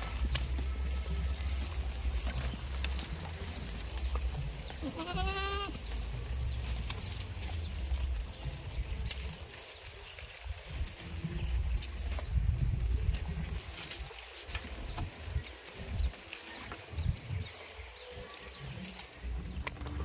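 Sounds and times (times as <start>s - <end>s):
goat bleating: 0.0s - 6.3s
steady low rumble: 0.0s - 14.0s.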